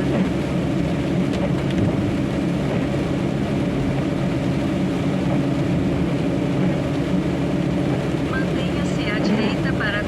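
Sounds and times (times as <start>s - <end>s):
wet road and rain hiss: 0.1s - 10.0s
truck diesel engine running: 2.0s - 10.0s.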